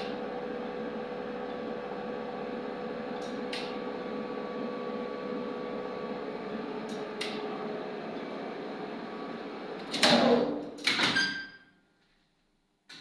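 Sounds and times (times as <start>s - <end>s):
lift motor humming: 0.0s - 10.0s.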